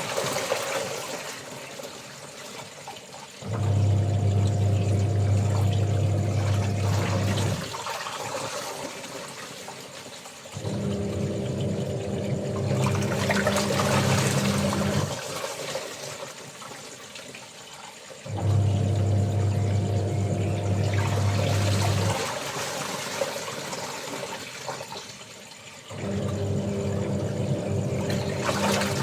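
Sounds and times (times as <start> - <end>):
water sloshing in tub: 0.0 - 29.0
washing machine motor humming: 3.4 - 7.8, 10.6 - 15.2, 18.3 - 22.3, 25.9 - 29.0.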